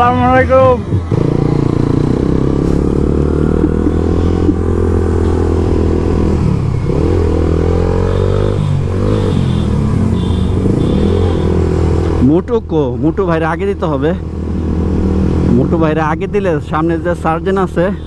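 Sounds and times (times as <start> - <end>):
motorcycle engine revving: 0.0 - 12.4, 14.2 - 17.2.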